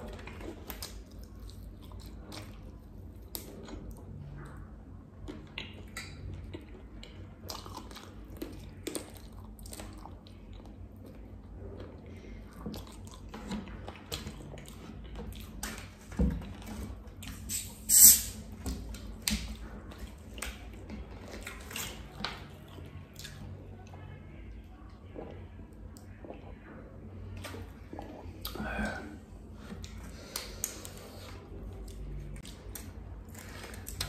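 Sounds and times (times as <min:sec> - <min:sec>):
man chewing food: 0:00.0 - 0:24.0, 0:26.0 - 0:34.0.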